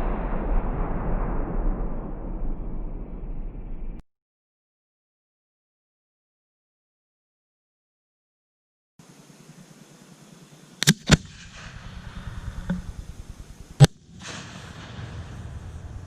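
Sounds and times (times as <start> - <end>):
fireworks banging: 10.8 - 16.0.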